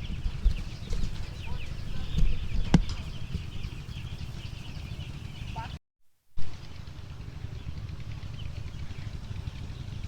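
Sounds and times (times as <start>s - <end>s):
low rumble: 0.0s - 5.7s
chicks peeping: 0.0s - 5.8s.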